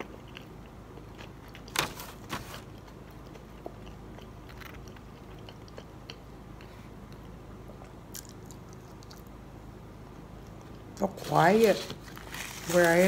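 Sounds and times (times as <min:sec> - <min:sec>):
person chewing fried food: 0:00.0 - 0:01.8, 0:02.5 - 0:09.4
steady low hum: 0:00.0 - 0:13.0.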